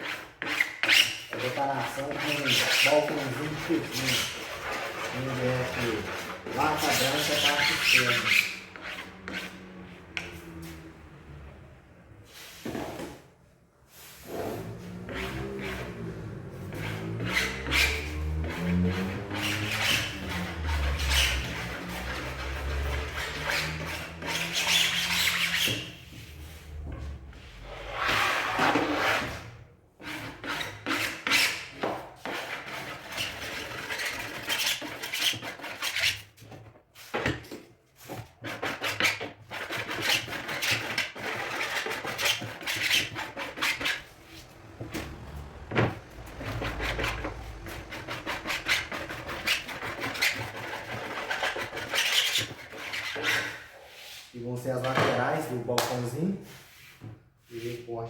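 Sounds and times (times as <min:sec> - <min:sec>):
sandpaper rubbing wood edges: 0:00.0 - 0:09.8, 0:14.2 - 0:26.8, 0:38.0 - 0:54.4.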